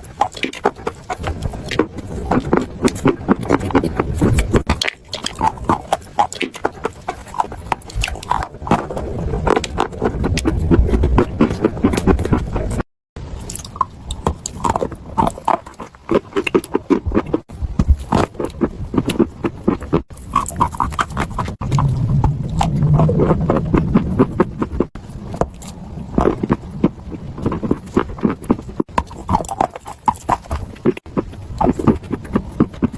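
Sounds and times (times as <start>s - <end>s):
chewing and crunching chalk: 0.0s - 32.9s
low hum: 21.5s - 27.4s.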